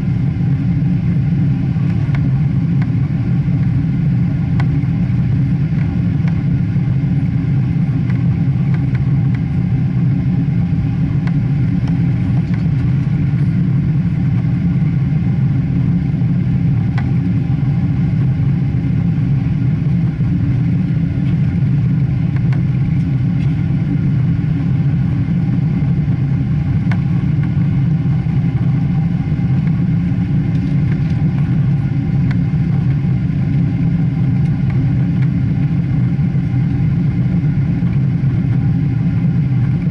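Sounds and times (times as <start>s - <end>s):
jet engine rumble in cabin: 0.0s - 39.9s.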